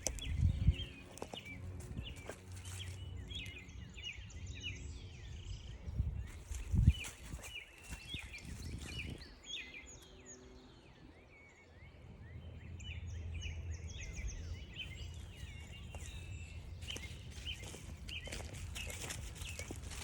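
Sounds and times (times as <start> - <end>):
footsteps on trail: 0.0 - 3.7, 6.2 - 9.3, 14.8 - 20.0
songbirds chirping and singing: 0.0 - 20.0.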